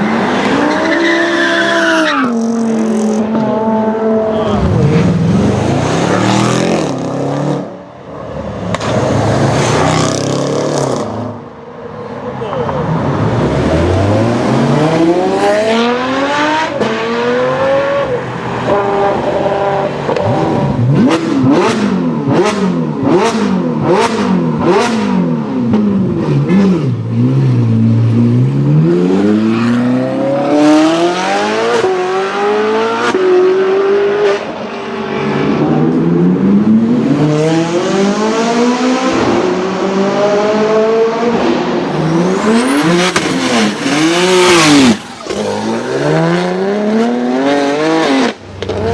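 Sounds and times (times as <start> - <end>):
sports car engine revving: 18.7 - 34.5.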